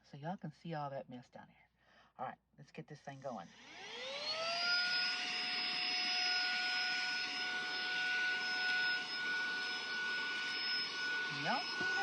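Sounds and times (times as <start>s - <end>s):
handheld vacuum motor whine: 3.5s - 12.0s.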